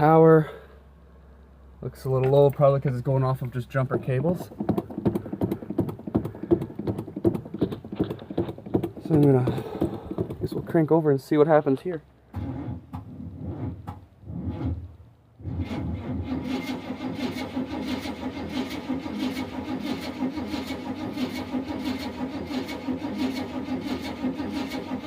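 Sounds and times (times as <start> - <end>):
engine cranking without starting: 2.1 - 10.9, 15.5 - 25.0.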